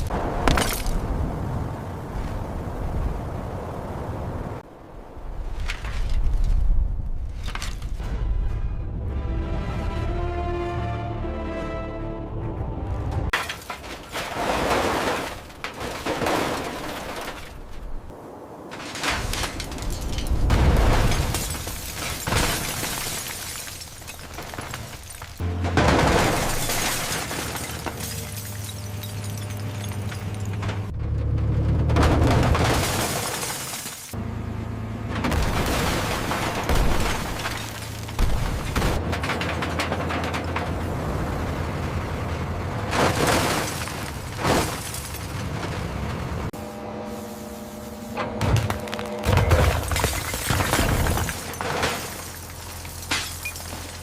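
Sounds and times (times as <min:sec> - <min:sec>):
scrap metal and glass crunching: 0:00.0 - 0:01.0, 0:05.6 - 0:08.0, 0:13.3 - 0:18.1, 0:18.7 - 0:30.9, 0:32.0 - 0:34.2, 0:35.2 - 0:41.1, 0:42.8 - 0:46.0, 0:48.4 - 0:54.0.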